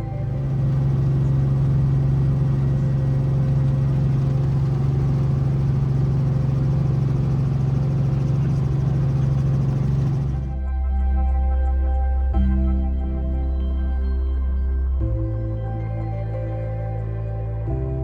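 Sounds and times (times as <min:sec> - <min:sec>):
helicopter running: 0:00.0 - 0:10.6.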